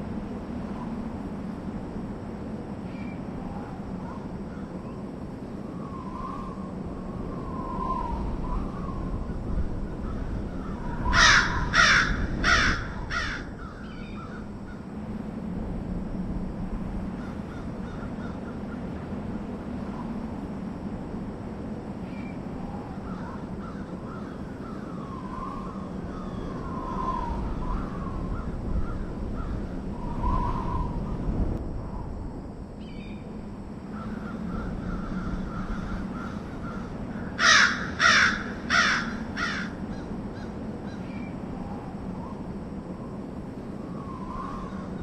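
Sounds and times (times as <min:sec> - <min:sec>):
low background rumble: 0:06.4 - 0:45.0
bird harsh cawing: 0:09.8 - 0:14.8, 0:17.2 - 0:18.9, 0:23.0 - 0:27.0, 0:27.6 - 0:29.8, 0:33.9 - 0:41.1.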